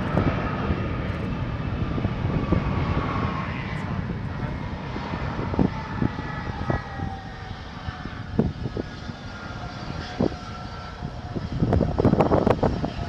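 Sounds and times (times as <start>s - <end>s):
jet engines whining and rumbling: 0.0s - 13.0s.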